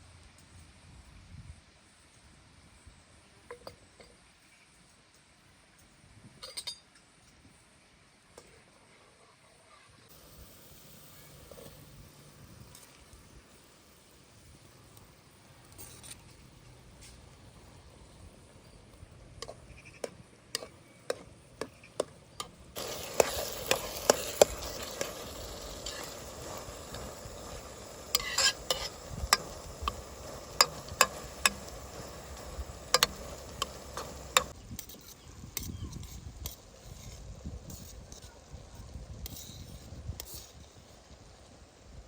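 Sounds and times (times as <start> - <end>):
food sizzling in a pot: 10.1 - 16.0, 22.8 - 42.0
utensil clicking against metal pot: 19.4 - 36.6.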